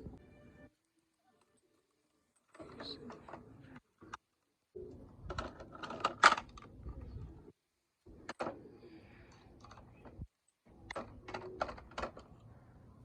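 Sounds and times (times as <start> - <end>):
toys clicking and knocking: 2.4 - 4.3, 5.1 - 7.2, 8.2 - 8.6, 9.3 - 12.5.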